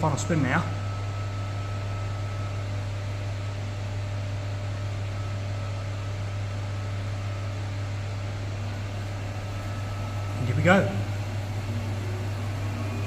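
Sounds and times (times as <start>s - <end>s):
washing machine humming: 0.0s - 13.0s.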